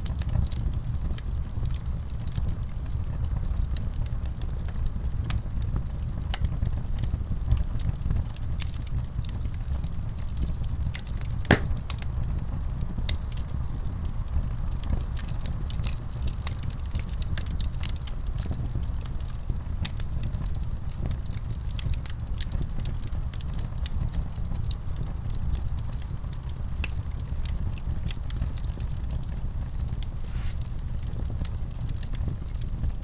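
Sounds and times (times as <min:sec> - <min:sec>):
wood fire crackling: 0:10.9 - 0:12.2, 0:25.2 - 0:33.0
loud fire pop: 0:11.5 - 0:12.1.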